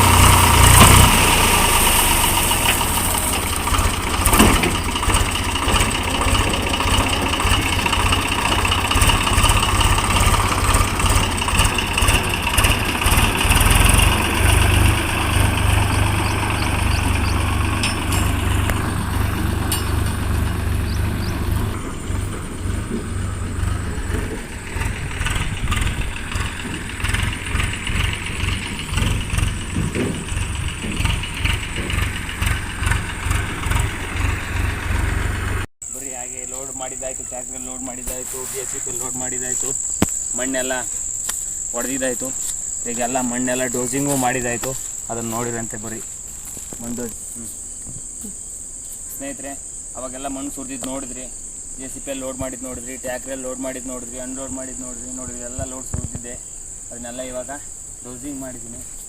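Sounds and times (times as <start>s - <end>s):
heavy diesel engine running: 0.0s - 36.3s.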